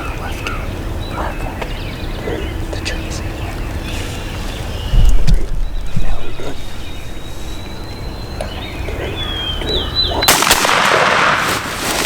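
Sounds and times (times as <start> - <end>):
shotgun blast: 10.3 - 11.6.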